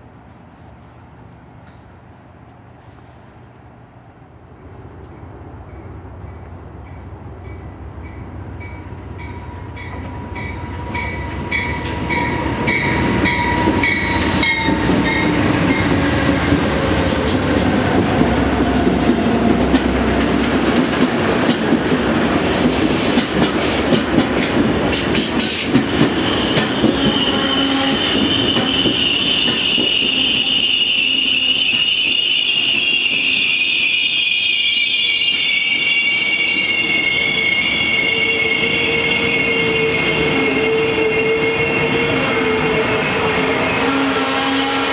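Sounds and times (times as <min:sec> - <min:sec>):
passenger train passing: 0:00.0 - 0:44.9
high-pitched wheel squeal: 0:26.2 - 0:42.8.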